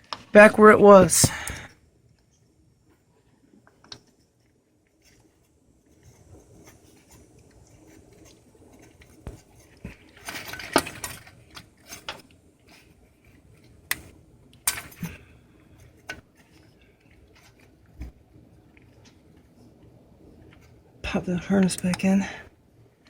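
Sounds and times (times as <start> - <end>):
tools clattering: 10.1 - 12.2, 14.6 - 15.2.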